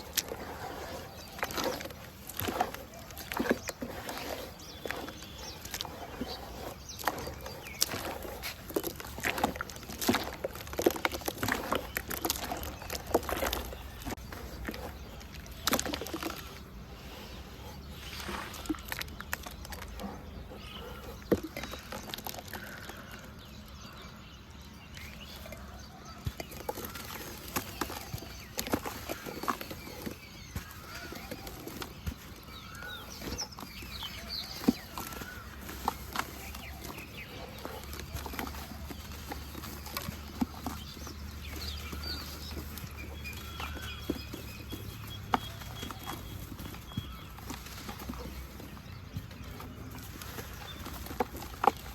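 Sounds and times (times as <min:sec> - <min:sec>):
dirt crumbling into water: 0:00.0 - 0:16.7
faint birds calling: 0:00.0 - 0:51.9.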